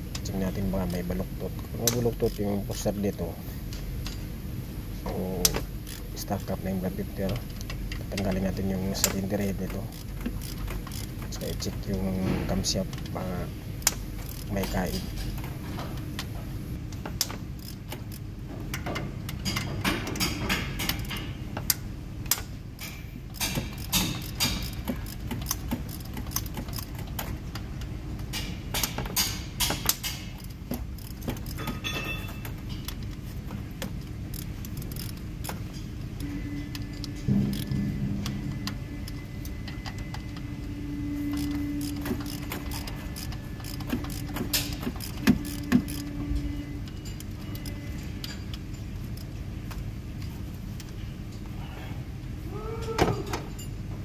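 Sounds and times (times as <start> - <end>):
metal tools clinking and rattling: 28.3 - 33.2.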